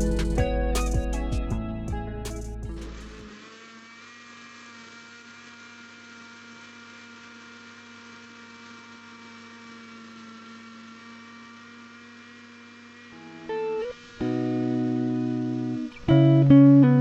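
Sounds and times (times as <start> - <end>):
steady hum with held tones: 10.6 - 17.0.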